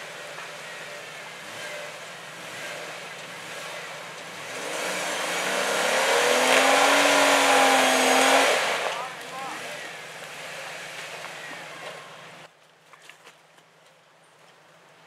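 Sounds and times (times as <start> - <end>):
off-road engine revving hard: 0.0 - 11.7.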